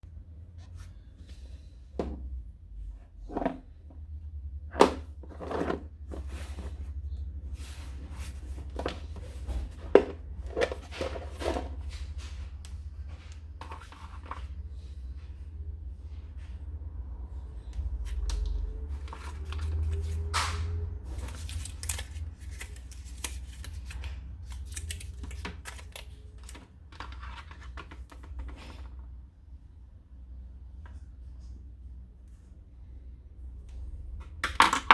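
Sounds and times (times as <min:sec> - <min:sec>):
steady low hum: 0:00.0 - 0:26.5
rustling and scraping: 0:04.7 - 0:29.1.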